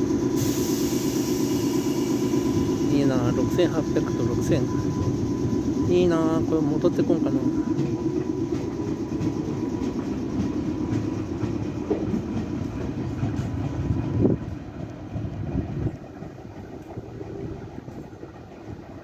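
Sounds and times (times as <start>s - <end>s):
electric train passing: 0.0s - 19.0s
wheels clacking over rail joints: 6.5s - 19.0s.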